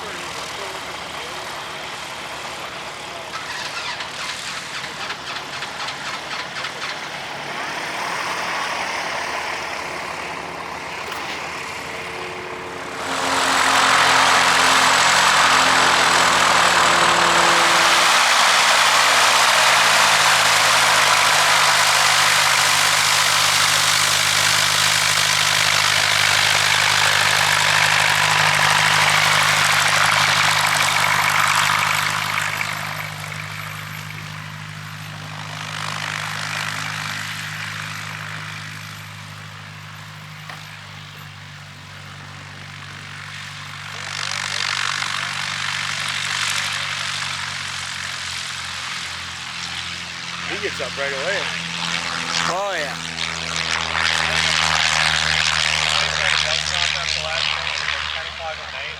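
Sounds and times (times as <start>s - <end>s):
propeller airplane engine hum: 0.0s - 58.9s
loud rushing noise: 12.6s - 21.4s.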